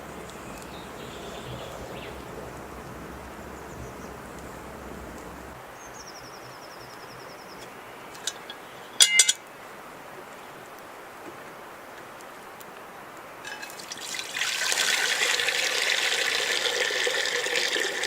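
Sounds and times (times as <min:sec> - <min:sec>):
bird trilling: 0:00.0 - 0:05.6
outdoor background noise: 0:00.0 - 0:18.0.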